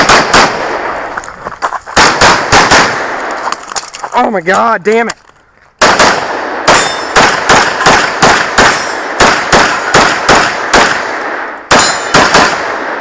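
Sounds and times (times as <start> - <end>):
rapid pistol shots: 0.0 - 0.9, 2.0 - 3.3, 5.8 - 13.0.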